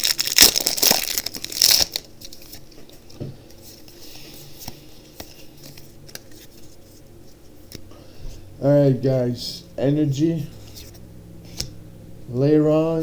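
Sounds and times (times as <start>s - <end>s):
foil wrapper crinkling and tearing: 0.0s - 2.8s
cards rustling and clicking: 0.1s - 7.1s.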